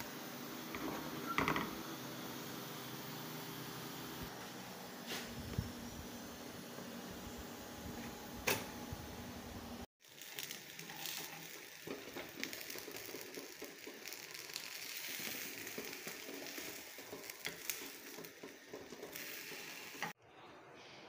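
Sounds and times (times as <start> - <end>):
small crackles and pops: 10.0 - 20.1
egg sizzling in oil: 10.0 - 20.2.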